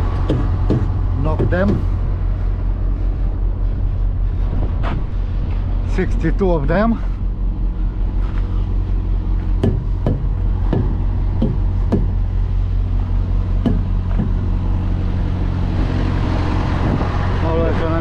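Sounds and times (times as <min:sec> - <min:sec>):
low engine hum: 0:00.0 - 0:18.0
tyre checker knocking tyres: 0:00.2 - 0:01.9, 0:09.6 - 0:12.2, 0:13.6 - 0:14.4.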